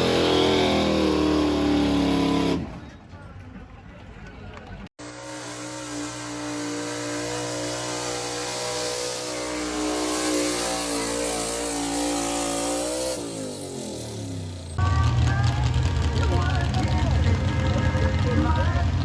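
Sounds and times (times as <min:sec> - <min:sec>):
tractor engine running under load: 0:05.9 - 0:19.0.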